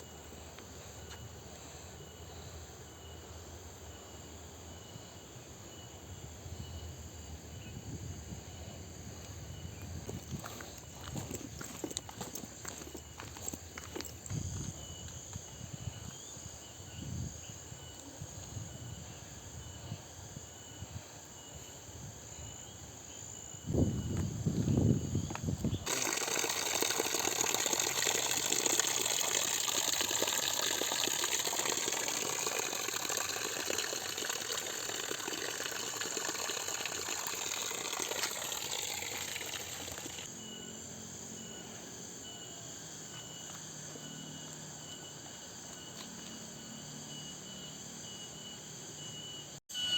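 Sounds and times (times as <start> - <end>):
insects chirping: 0.0 - 49.9
footsteps on forest trail: 9.2 - 16.3, 24.0 - 26.0.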